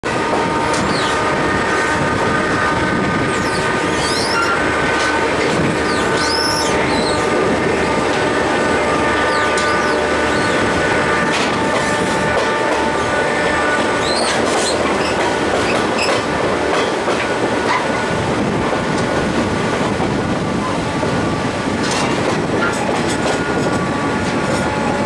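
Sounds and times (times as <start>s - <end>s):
train wheels rumbling on rail: 0.0s - 25.0s
train wheels squealing: 0.8s - 1.2s, 3.4s - 4.6s, 5.8s - 7.2s, 9.2s - 10.6s, 14.0s - 16.2s.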